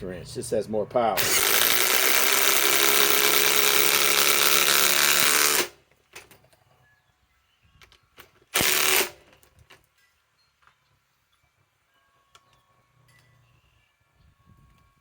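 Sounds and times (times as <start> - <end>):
impact wrench hammering: 1.2 - 5.8, 8.6 - 9.2.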